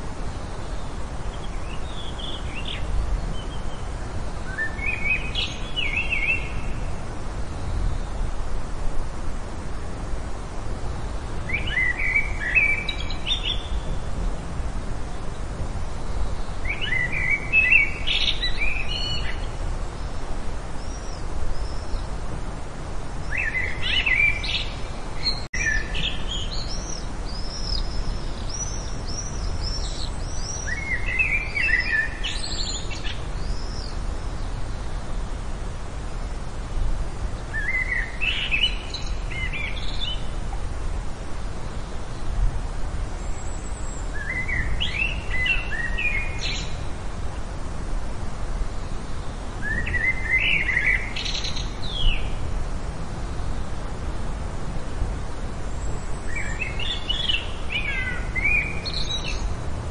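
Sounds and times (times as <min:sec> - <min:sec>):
bird singing chirps: 0:00.7 - 0:06.9, 0:11.5 - 0:13.9, 0:16.2 - 0:19.6, 0:23.2 - 0:34.6, 0:37.5 - 0:40.3, 0:43.3 - 0:46.8, 0:49.6 - 0:52.4, 0:56.3 - 0:59.5.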